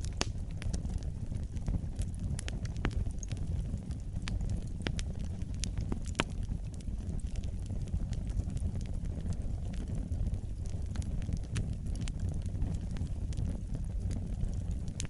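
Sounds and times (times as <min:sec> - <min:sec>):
fire crackles and pops: 0:00.0 - 0:15.0
fire flames rumbling: 0:00.0 - 0:15.0.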